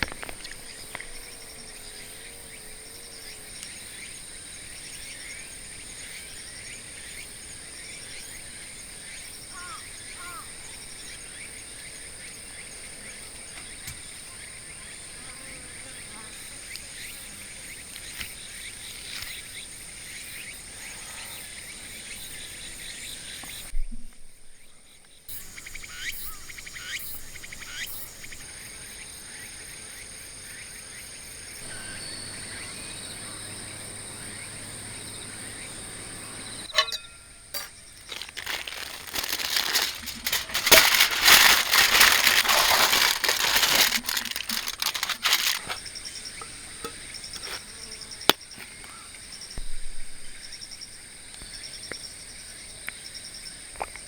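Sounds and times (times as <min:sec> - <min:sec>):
high insect buzz: 0:31.6 - 0:36.8
crinkling rustling handling noise: 0:37.6 - 0:45.9.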